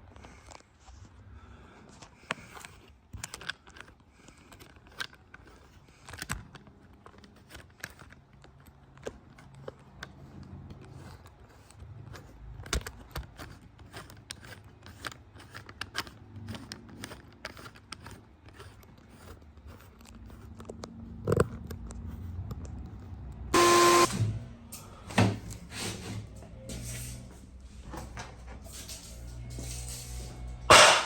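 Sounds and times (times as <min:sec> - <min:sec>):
scrapes clicks and knocks: 0:01.9 - 0:24.1
loud short tonal blast: 0:23.6 - 0:24.2.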